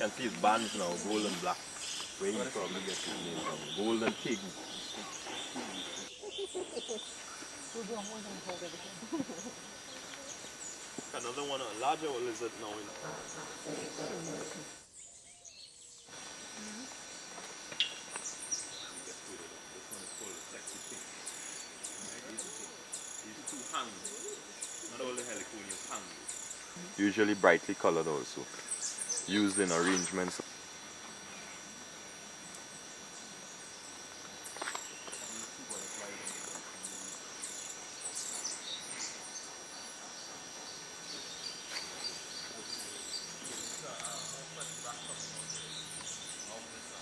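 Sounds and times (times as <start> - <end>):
faint animal calls: 0.0 - 14.8
high-pitched insect drone: 0.0 - 47.0.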